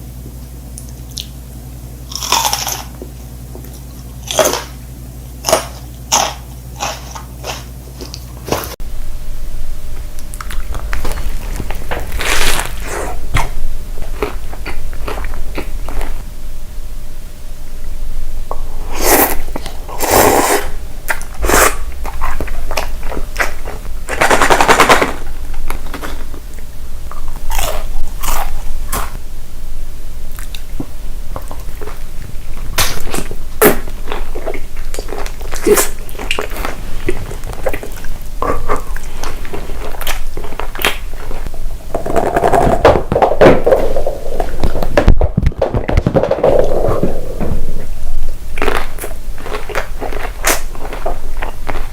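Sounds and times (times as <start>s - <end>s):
crunchy chewing: 2.1s - 8.8s, 10.2s - 16.2s, 18.6s - 29.2s, 30.3s - 43.0s, 47.8s - 51.9s.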